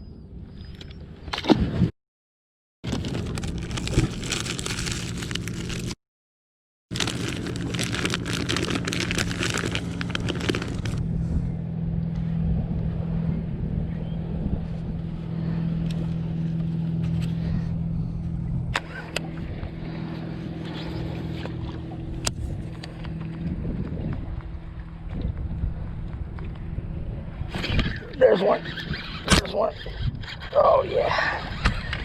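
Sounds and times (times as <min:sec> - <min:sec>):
boat motor humming: 0:06.9 - 0:30.2.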